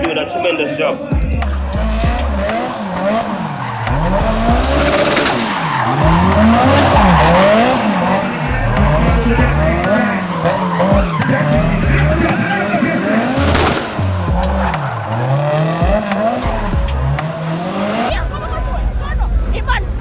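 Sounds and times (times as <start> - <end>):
tyres squealing: 1.4 - 18.4
car engine revving: 1.4 - 20.0.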